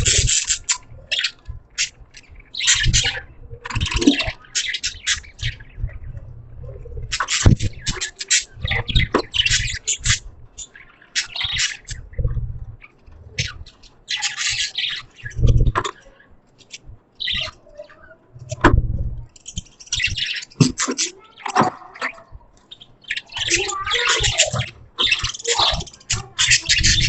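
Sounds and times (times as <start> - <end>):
budgerigars chirping: 0.0 - 6.2, 7.0 - 18.2, 19.4 - 27.0
low thuds: 12.0 - 13.8, 18.4 - 19.4.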